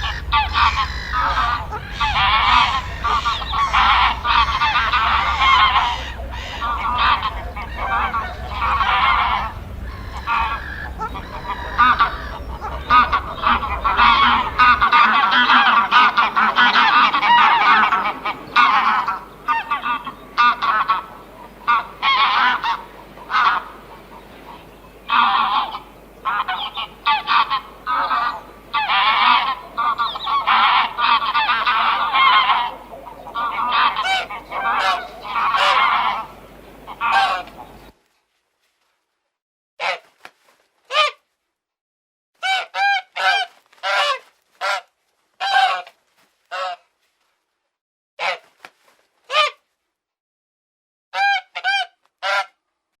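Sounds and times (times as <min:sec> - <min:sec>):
low background rumble: 0:00.0 - 0:37.9
birds honking: 0:00.0 - 0:38.0.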